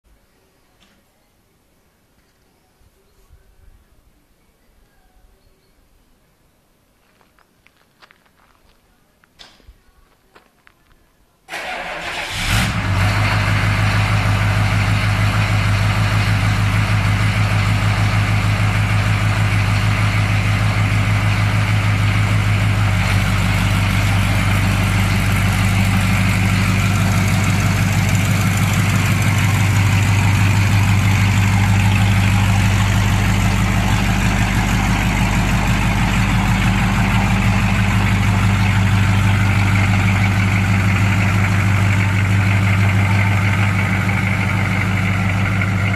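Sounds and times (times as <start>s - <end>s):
pickup engine idling: 11.5s - 45.9s.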